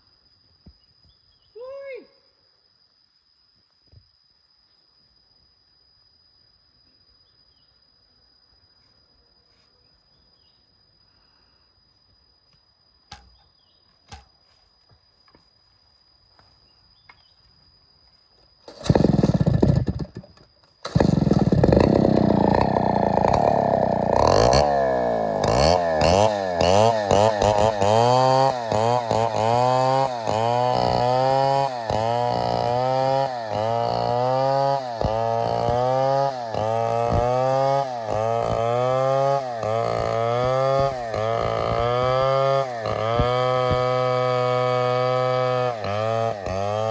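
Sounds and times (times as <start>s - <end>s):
chainsaw starting and revving: 18.7s - 46.9s.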